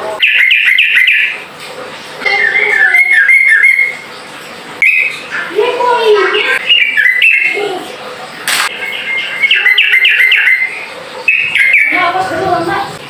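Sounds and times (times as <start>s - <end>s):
bird singing whistled phrases: 2.3s - 4.0s, 4.8s - 5.2s, 6.6s - 7.6s, 8.8s - 12.0s.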